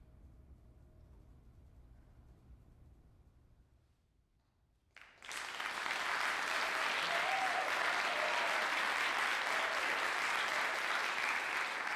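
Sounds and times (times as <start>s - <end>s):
audience applause: 5.0s - 11.9s.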